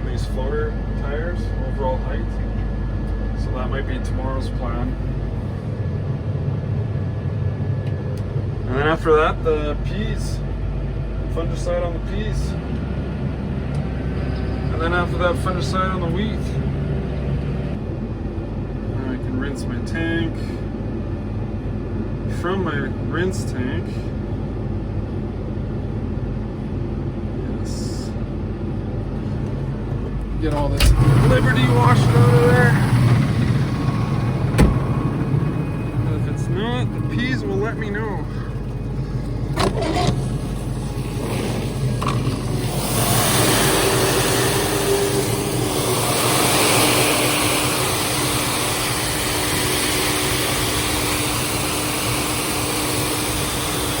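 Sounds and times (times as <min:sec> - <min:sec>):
crop sprayer engine droning: 0:07.5 - 0:17.9, 0:29.0 - 0:54.0.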